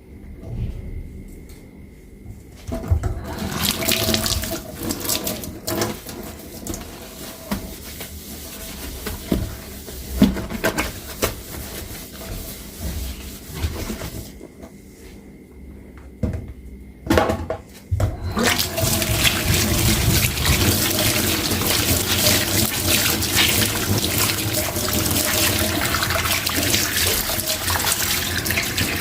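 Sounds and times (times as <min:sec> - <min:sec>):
tap water running into sink: 0:03.1 - 0:11.3, 0:18.1 - 0:29.0.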